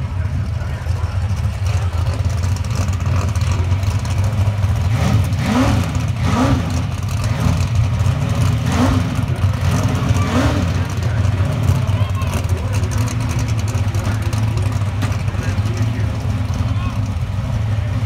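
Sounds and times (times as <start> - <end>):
engine revs: 0.0 - 18.0
race car engine idling: 0.0 - 18.0.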